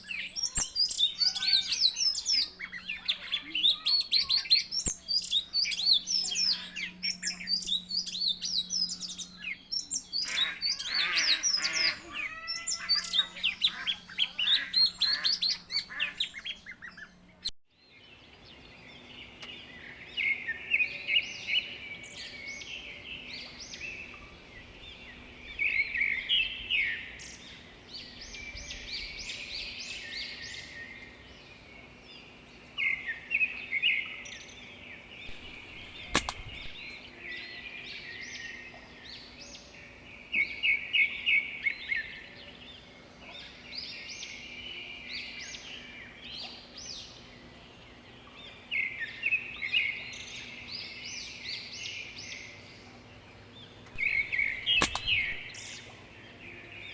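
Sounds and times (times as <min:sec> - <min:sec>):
small birds chirping: 0:00.0 - 0:17.5, 0:35.3 - 0:37.0, 0:53.7 - 0:55.9
sharp click: 0:00.6 - 0:01.0, 0:35.3 - 0:36.8, 0:54.0 - 0:55.6.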